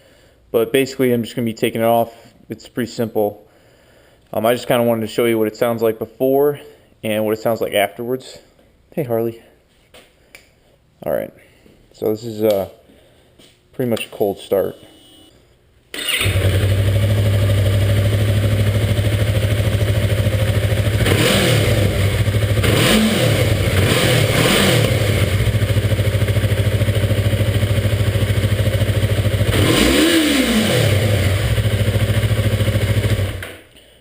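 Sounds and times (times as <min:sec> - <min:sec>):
motorcycle engine idling and revving: 0:16.2 - 0:33.4.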